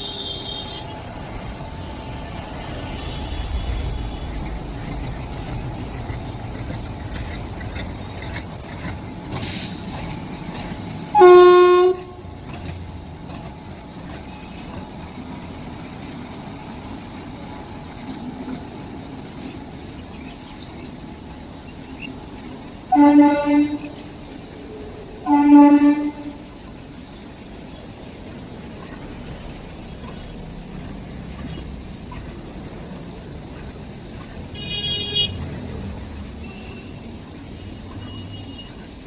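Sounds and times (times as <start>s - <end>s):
locomotive horn blast: 0.0s - 1.1s, 11.1s - 12.6s, 22.9s - 24.1s, 25.2s - 26.6s, 34.5s - 35.4s
train rumbling: 0.0s - 39.0s.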